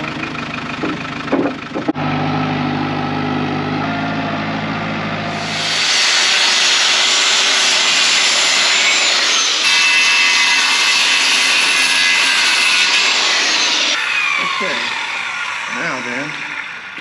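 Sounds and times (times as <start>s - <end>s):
power tool hissing: 5.4s - 11.8s.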